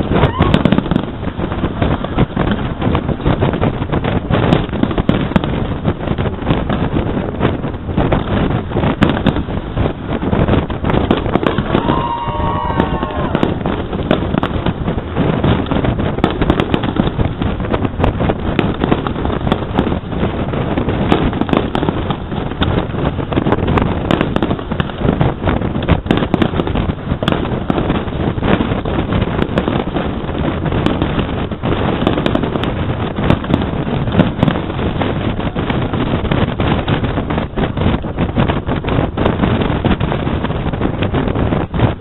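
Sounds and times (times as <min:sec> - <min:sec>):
firework bangs and crackles: 0:00.0 - 0:42.0
wind rumble on microphone: 0:00.0 - 0:42.0.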